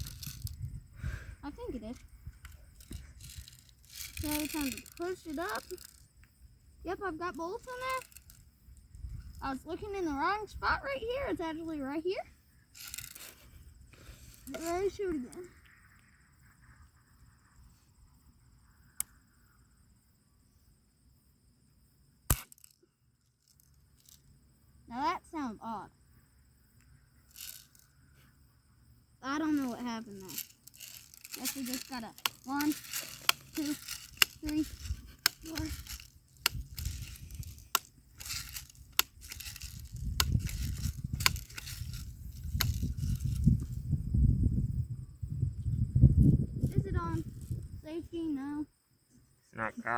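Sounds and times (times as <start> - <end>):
rustling handling noise: 0.0 - 0.7, 1.6 - 6.1, 7.4 - 8.4, 12.8 - 15.0, 27.3 - 27.9, 29.4 - 43.8
bb gun click: 22.3 - 22.8
bb gun metallic clicks: 22.3 - 22.9, 30.3 - 43.4.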